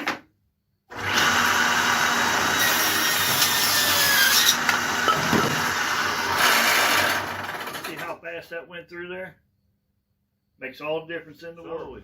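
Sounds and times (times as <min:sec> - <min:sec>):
table saw cutting wood: 0:00.9 - 0:08.0.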